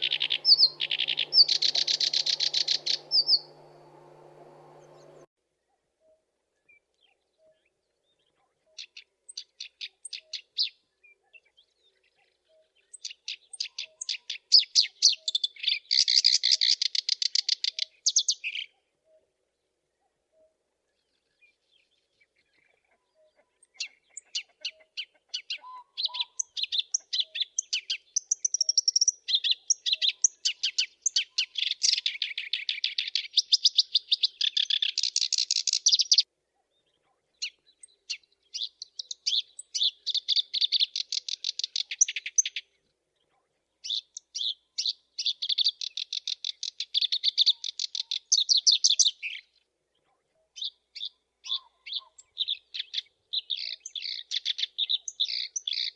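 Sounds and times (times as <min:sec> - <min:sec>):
bird chattering song: 0:00.0 - 0:05.3, 0:11.4 - 0:18.8, 0:22.3 - 0:36.3, 0:36.9 - 0:42.7, 0:43.3 - 0:49.6, 0:50.5 - 0:55.9.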